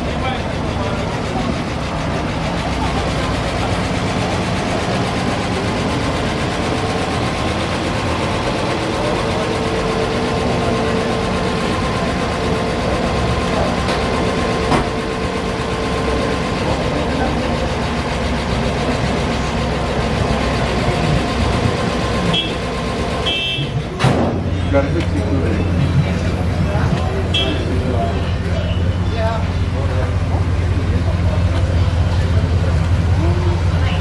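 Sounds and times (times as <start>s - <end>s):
people talking: 0.0s - 22.6s, 23.3s - 34.0s
vehicle engine idling: 0.0s - 34.0s.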